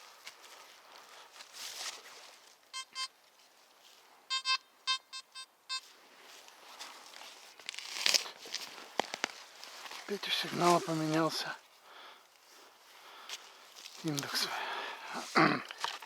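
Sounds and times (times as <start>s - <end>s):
metal detector beeps: 2.7s - 3.2s, 4.3s - 5.9s.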